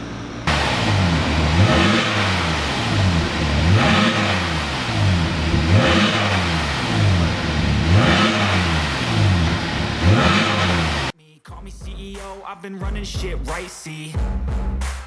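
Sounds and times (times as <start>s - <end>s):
car engine revving: 0.4s - 11.2s.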